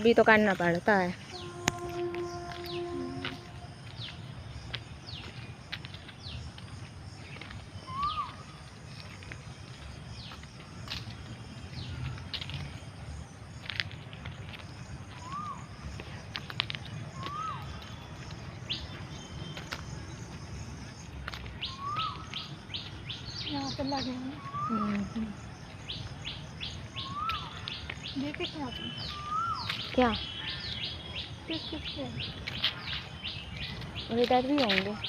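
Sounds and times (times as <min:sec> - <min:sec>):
birds chirping: 0:00.0 - 0:35.0
lower arched bird call: 0:01.2 - 0:04.2, 0:07.8 - 0:08.6, 0:25.9 - 0:27.7, 0:28.7 - 0:33.5.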